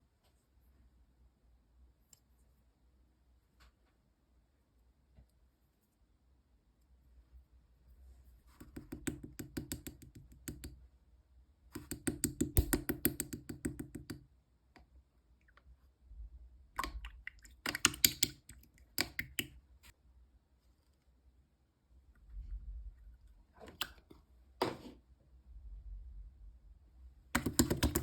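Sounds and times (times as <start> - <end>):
slime squishing with popping clicks: 16.8 - 19.5.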